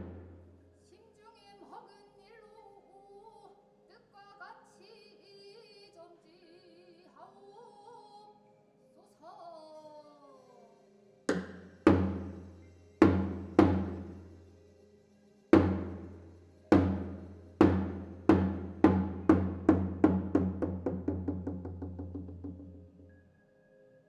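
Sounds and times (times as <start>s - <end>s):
deep drum strokes ringing: 0.0s - 0.4s, 11.3s - 14.3s, 15.6s - 22.7s.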